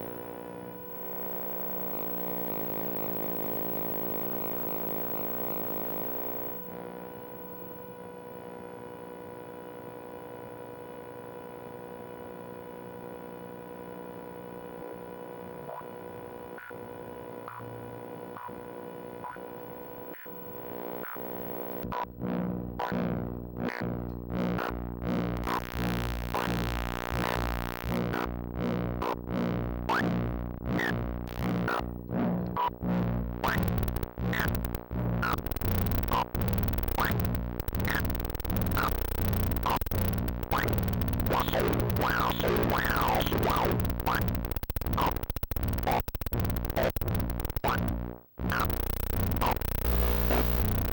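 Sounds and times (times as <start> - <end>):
synthesizer held tones hum: 0.0 - 8.8, 27.8 - 50.9
electronic clicks and chirping sweeps: 33.4 - 47.9.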